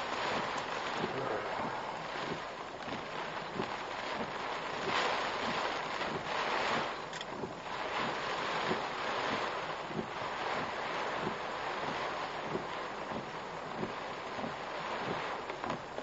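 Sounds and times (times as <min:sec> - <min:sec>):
rain and wind beating on car: 0:00.0 - 0:16.0
soft regular thumps: 0:00.1 - 0:16.0.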